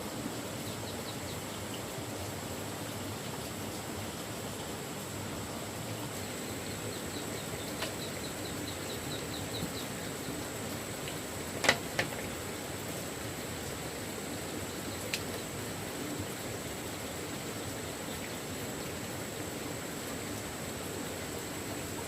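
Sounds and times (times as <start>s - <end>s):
outdoor hiss: 0.0s - 22.0s
sharp snaps or knocks: 11.6s - 12.2s.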